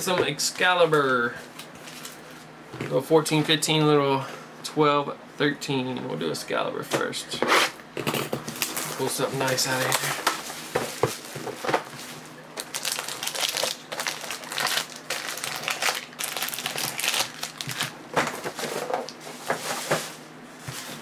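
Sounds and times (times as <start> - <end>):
plastic wrapping crinkling and tearing: 8.5 - 20.0.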